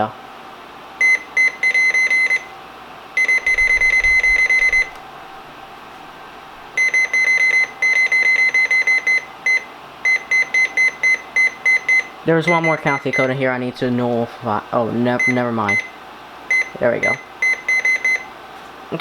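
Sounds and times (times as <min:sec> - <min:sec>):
short high-pitched keypad beeps: 0:03.2 - 0:05.0.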